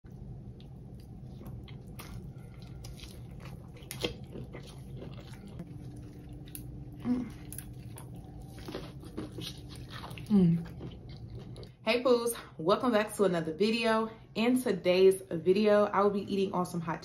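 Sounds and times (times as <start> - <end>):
steady low hum: 0.0 - 17.0
crunchy chewing: 0.6 - 11.7.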